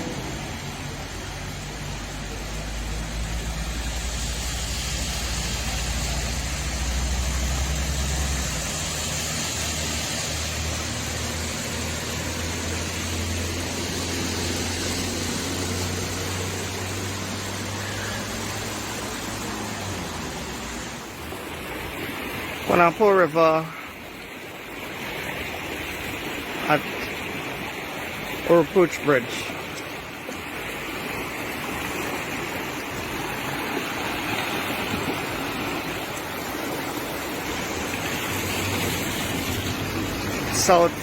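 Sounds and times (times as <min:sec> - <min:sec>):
vehicle engine running: 0:00.0 - 0:21.2
broad hiss: 0:01.8 - 0:21.0.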